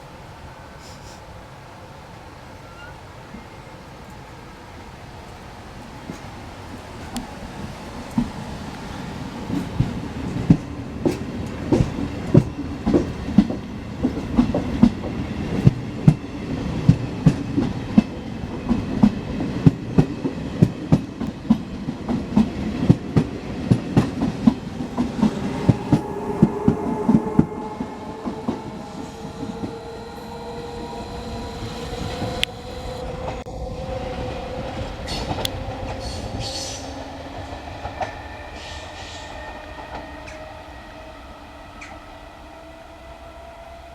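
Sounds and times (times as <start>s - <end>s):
electric locomotive whine: 0.0s - 43.9s
train wheels clicking over rail joints: 9.5s - 27.2s.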